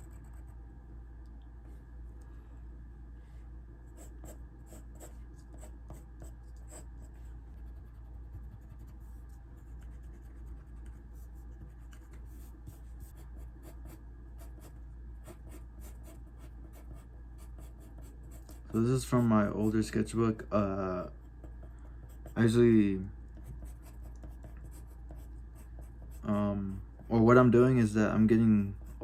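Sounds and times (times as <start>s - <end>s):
steady low hum: 0.0s - 29.0s
pencil scratching on paper: 3.9s - 19.9s, 21.0s - 22.7s, 23.3s - 27.2s, 28.6s - 29.0s.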